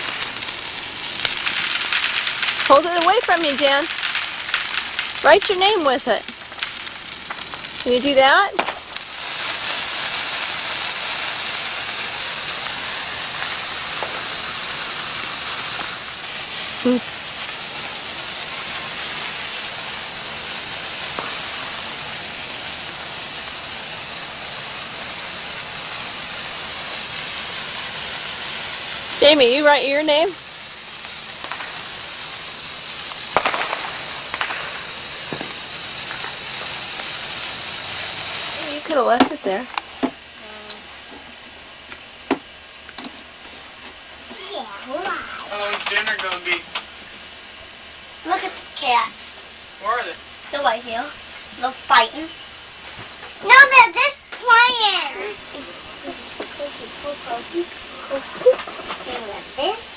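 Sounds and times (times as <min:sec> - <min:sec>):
sharp pops: 0:00.0 - 0:29.6, 0:30.2 - 0:41.3
sparkler fizzing: 0:00.0 - 0:59.9.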